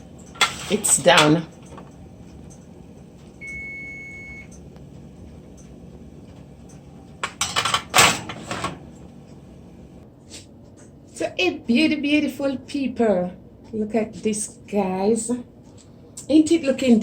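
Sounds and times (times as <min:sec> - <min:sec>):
kitchen appliance beep: 0:03.4 - 0:04.6.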